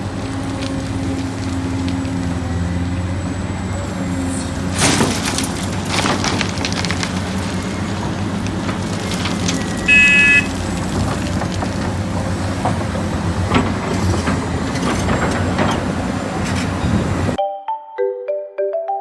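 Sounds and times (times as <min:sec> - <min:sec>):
diesel engine running: 0:00.0 - 0:17.4
loud high-pitched tone: 0:09.9 - 0:10.5.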